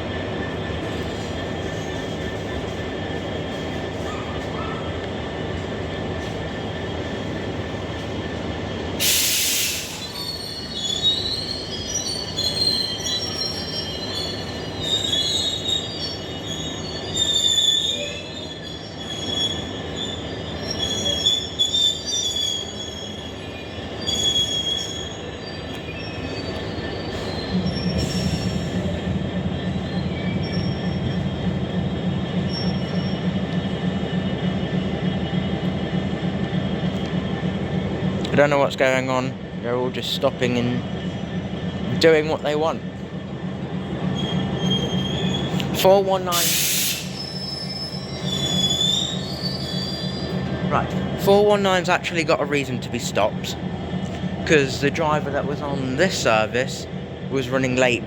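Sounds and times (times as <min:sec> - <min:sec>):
train low rumble: 0:00.0 - 0:58.0
train wheels squealing on rails: 0:00.0 - 0:58.0
air hisses: 0:09.0 - 0:10.1, 0:46.3 - 0:47.3.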